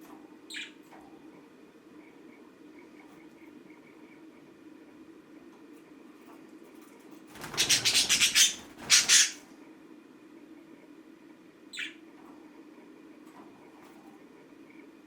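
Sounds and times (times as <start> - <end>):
budgie squawking: 7.4 - 9.4
budgie chirp: 7.5 - 9.4.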